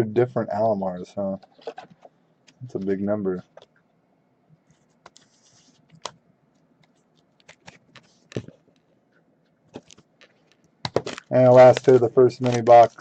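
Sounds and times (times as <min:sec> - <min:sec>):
soft rustle: 0:04.6 - 0:10.6
cards clicking and tapping: 0:09.8 - 0:13.0.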